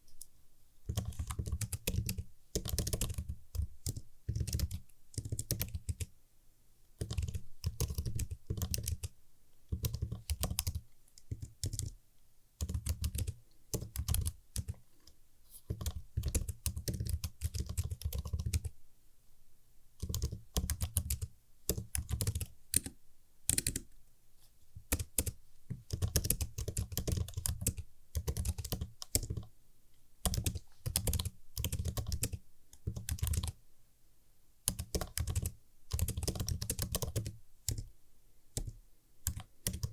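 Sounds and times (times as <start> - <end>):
computer keyboard typing: 0.9 - 6.1, 7.0 - 12.0, 12.6 - 14.8, 15.7 - 18.7, 20.0 - 23.9, 24.8 - 29.5, 30.2 - 33.6, 34.7 - 37.9, 38.5 - 39.9.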